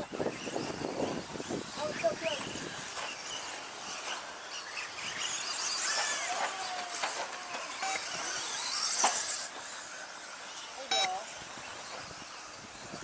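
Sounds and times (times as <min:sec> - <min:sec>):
rc truck motor whines: 0:00.0 - 0:13.0.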